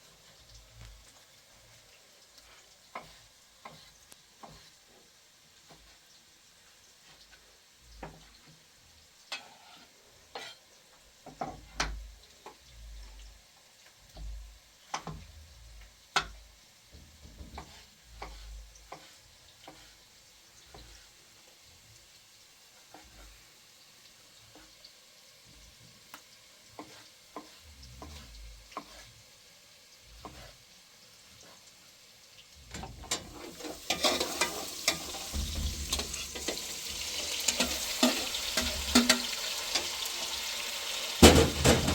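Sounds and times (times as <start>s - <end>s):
food frying in hot oil: 0.0s - 41.9s
utensils clicking and knocking: 37.5s - 39.8s.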